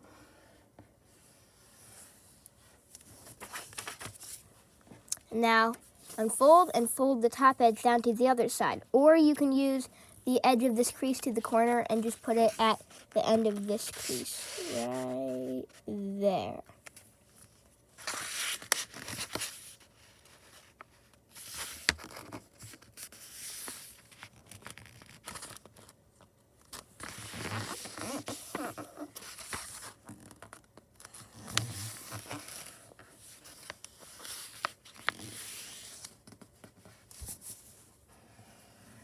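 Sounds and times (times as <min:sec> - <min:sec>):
paper being folded and creased: 0:03.0 - 0:04.4, 0:11.1 - 0:15.9, 0:16.9 - 0:26.0, 0:26.6 - 0:37.7.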